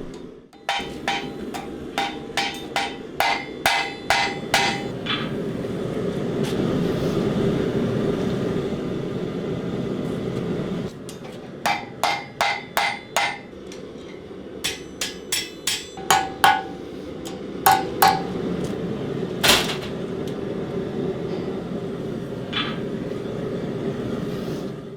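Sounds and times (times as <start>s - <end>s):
hammer striking steel on anvil: 0.6s - 5.4s, 11.2s - 18.5s.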